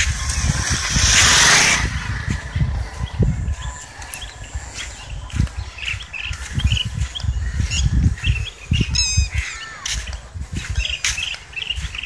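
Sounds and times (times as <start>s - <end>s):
low rumble in gusts: 0.0s - 11.0s
birds chirping: 0.0s - 12.0s
bird squawking: 8.8s - 9.9s.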